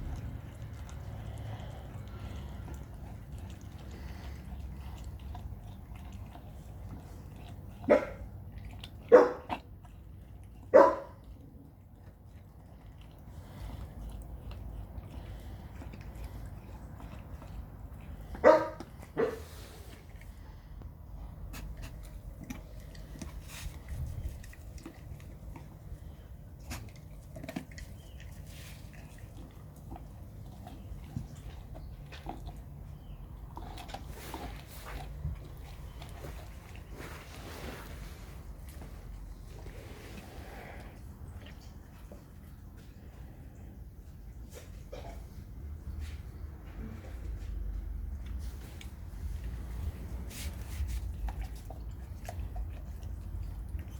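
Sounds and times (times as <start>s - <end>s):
dog chewing bone: 0.0s - 37.4s, 47.8s - 53.9s
dog barking deeply: 7.8s - 8.3s, 9.0s - 9.6s, 10.7s - 11.2s, 18.4s - 19.4s
dog yelp: 9.1s - 9.5s, 10.7s - 11.1s, 18.4s - 19.4s.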